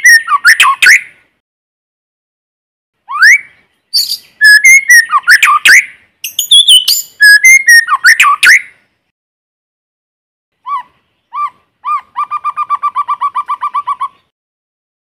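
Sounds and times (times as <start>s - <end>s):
bird whistling song: 0.0s - 1.2s, 3.0s - 8.8s, 10.6s - 14.3s.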